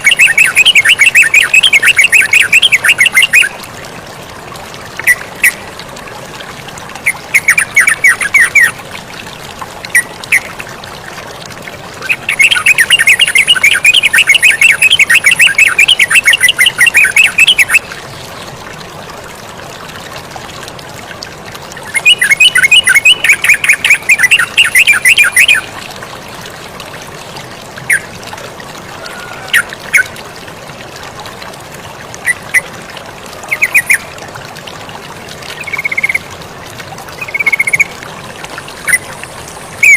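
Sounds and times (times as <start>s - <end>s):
running water: 0.0s - 39.9s
bird chattering song: 12.0s - 17.8s, 21.9s - 25.7s.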